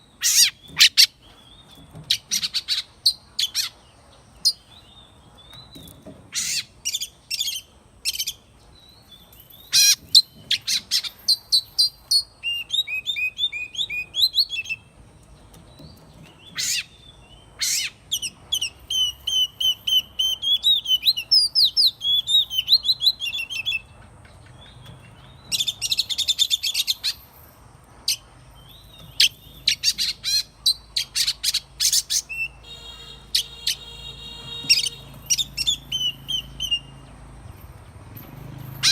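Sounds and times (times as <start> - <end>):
bird singing: 0.0 - 38.9.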